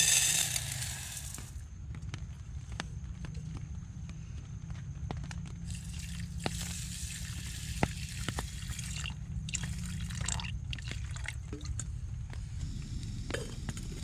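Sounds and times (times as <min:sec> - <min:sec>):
constant low rumble: 0:00.0 - 0:14.0
rain on a tarp: 0:05.6 - 0:08.8.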